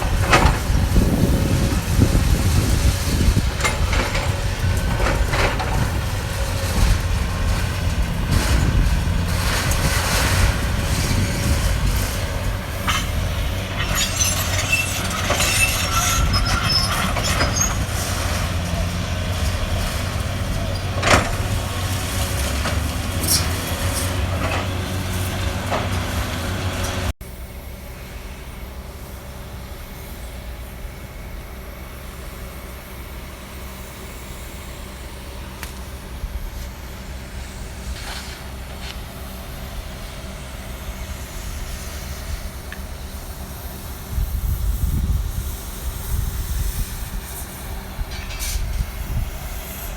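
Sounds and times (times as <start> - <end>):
excavator engine running: 0.0 - 49.9
metallic knocks and squeals: 12.4 - 27.1.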